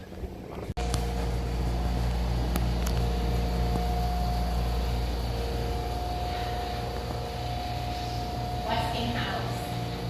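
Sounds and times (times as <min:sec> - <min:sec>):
mechanical hum with pulsing beat: 0:00.0 - 0:10.0
constant whine: 0:00.1 - 0:10.0.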